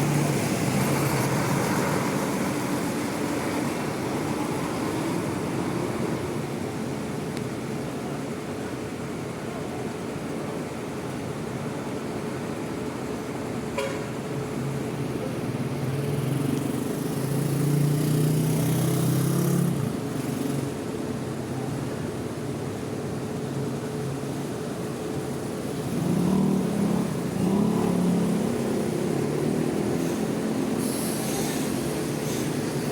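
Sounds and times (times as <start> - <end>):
diesel bus engines running: 0.0 - 32.9
steady background noise: 0.0 - 32.9
short air hiss: 30.8 - 32.6.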